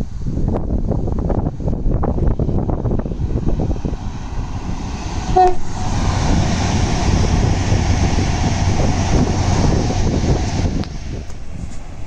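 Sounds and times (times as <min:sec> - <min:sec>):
wind buffeting microphone: 0:00.0 - 0:12.0
train rushing past: 0:01.2 - 0:12.0
train horn toot: 0:05.0 - 0:06.0.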